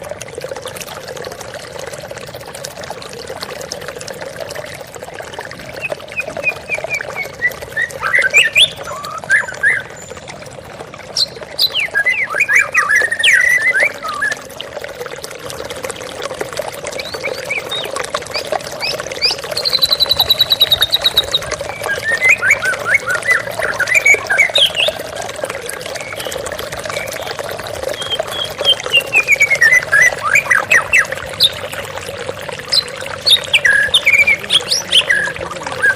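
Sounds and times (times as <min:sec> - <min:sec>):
bird singing whistled notes: 0:05.8 - 0:10.0, 0:11.2 - 0:14.4, 0:19.2 - 0:25.0, 0:27.9 - 0:31.6, 0:32.8 - 0:35.9
waterfall splashing: 0:32.7 - 0:35.9.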